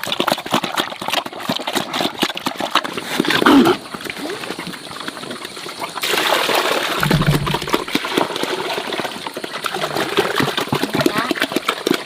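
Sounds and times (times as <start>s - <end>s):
water gushing and splashing: 0.0s - 12.0s
low hum: 7.0s - 8.0s.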